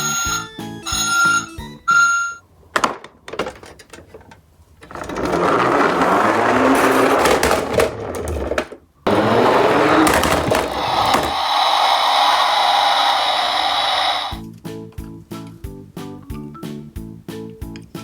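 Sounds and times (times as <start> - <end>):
toy truck rolling whir: 0.0 - 2.4, 3.6 - 14.4.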